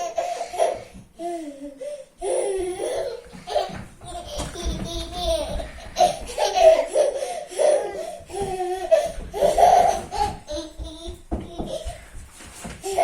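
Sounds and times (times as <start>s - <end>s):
young child laughing: 2.3s - 12.0s.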